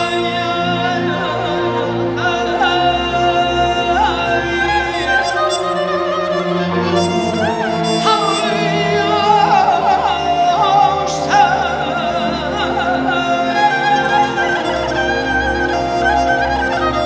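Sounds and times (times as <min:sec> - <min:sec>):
orchestral string chords: 0:00.0 - 0:17.0
solo voice singing with trills: 0:00.0 - 0:17.0.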